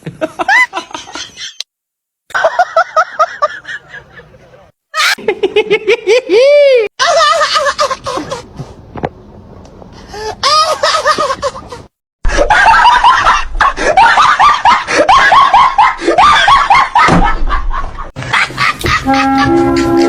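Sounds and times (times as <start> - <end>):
dog laughing cries: 5.0 - 5.2, 12.3 - 17.1
yelping laugh-like cries: 5.0 - 5.2, 12.4 - 17.1.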